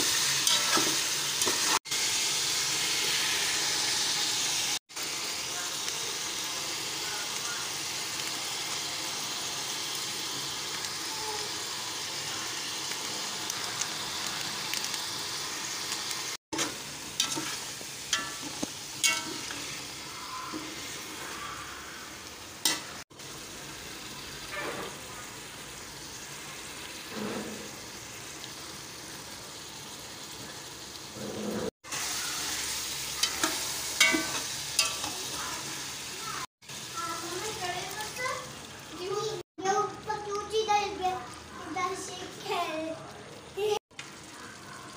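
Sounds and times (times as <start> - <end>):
food sizzling in oil: 0.0 - 44.9
metal spoon scraping a pot: 16.6 - 19.7.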